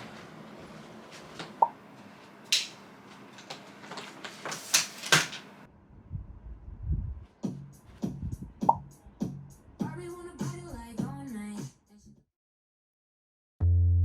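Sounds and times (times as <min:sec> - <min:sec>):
low rumble: 0:05.7 - 0:07.3
background music with a beat: 0:08.6 - 0:11.8.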